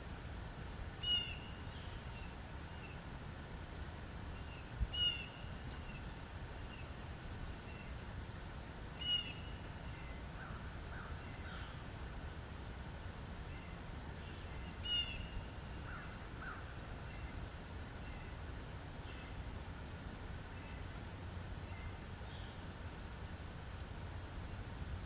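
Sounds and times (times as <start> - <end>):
faint bird chirps: 0.7 - 3.0, 3.7 - 8.0, 9.0 - 11.8, 13.5 - 19.4.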